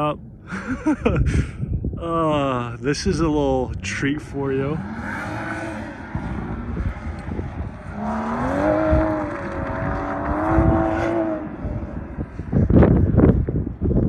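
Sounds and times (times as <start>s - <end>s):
wind buffeting microphone: 0.0s - 14.0s
car engine revving hard: 4.6s - 12.7s.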